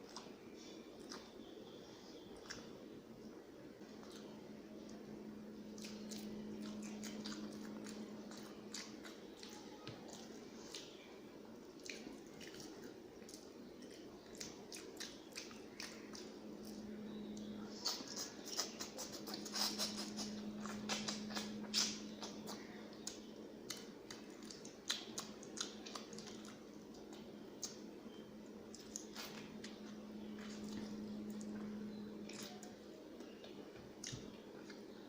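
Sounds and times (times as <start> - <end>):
person chewing food: 0.0 - 2.8, 3.8 - 35.0
small mouth clicks: 17.3 - 27.9, 28.6 - 31.7
wet squishy mouth sounds: 17.7 - 27.9, 28.6 - 34.8.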